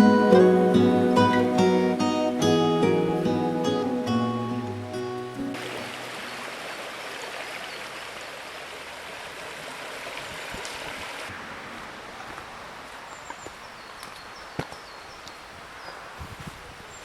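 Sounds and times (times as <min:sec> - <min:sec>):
stream water rushing: 0:00.0 - 0:13.3.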